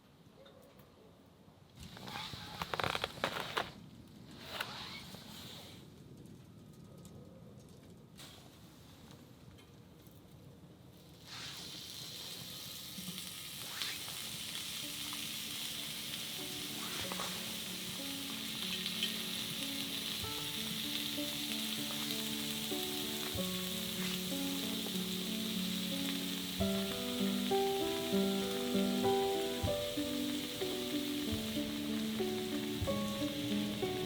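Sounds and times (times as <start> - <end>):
food sizzling in a hot pan: 11.2 - 34.0.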